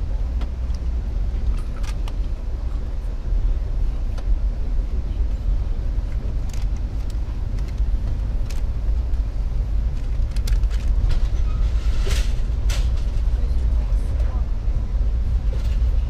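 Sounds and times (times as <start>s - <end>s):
train running rumble: 0.0s - 16.0s
faint clicks and rattles: 6.1s - 9.2s, 9.8s - 11.4s.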